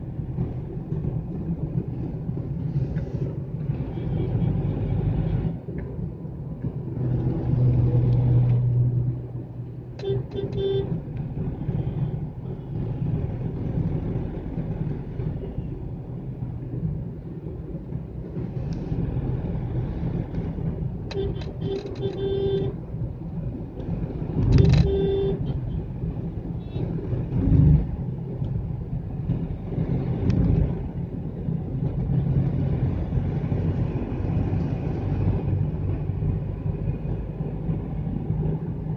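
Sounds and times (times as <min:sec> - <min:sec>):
car road rumble: 0:00.0 - 0:38.9
car horn toots: 0:10.0 - 0:10.9, 0:21.1 - 0:22.7, 0:24.5 - 0:25.6.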